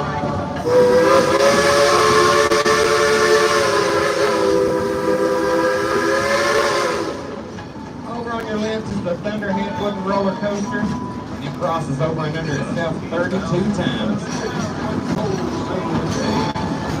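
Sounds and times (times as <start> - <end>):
locomotive steam whistle blast: 0.6 - 7.4
steam hissing: 0.6 - 7.5.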